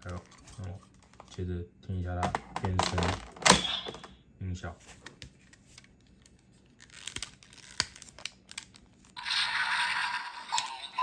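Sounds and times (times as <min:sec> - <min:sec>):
toy transformation sound effect: 0:09.2 - 0:11.0.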